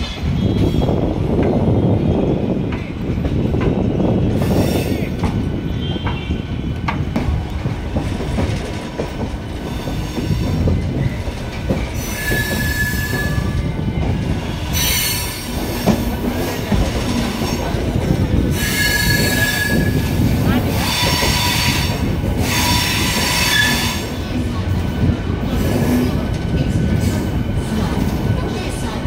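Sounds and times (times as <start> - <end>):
train wheels squealing: 0.0 - 1.1, 9.6 - 16.1, 18.5 - 24.3
train wheels rumbling on rails: 0.0 - 29.0.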